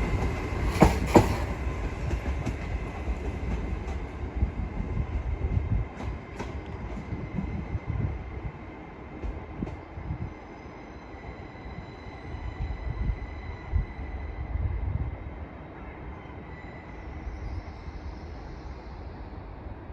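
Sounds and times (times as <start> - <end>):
train wheels rumbling on rails: 0.0 - 15.6.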